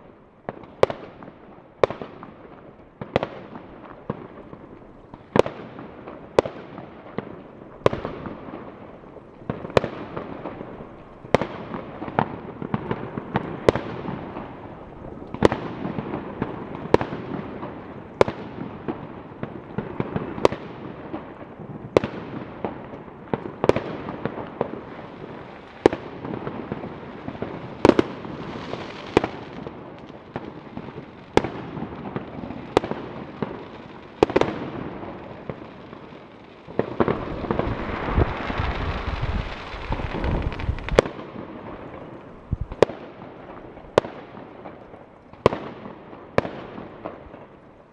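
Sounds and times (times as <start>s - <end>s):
fireworks crackle and rumble: 0.0s - 47.9s
fireworks bangs: 0.4s - 47.6s.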